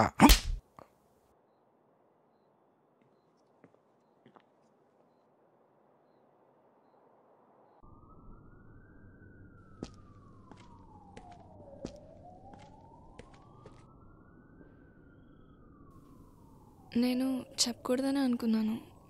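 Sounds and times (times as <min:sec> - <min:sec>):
distant siren wailing: 0:05.1 - 0:19.0.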